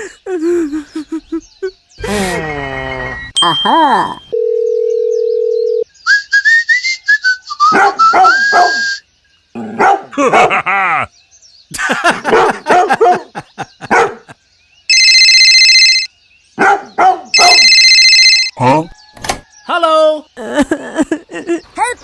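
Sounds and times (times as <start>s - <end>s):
whistle-like rising and falling tones: 6.0s - 9.0s
dog barking: 7.7s - 8.8s, 9.7s - 10.5s, 12.2s - 14.3s, 16.6s - 17.7s.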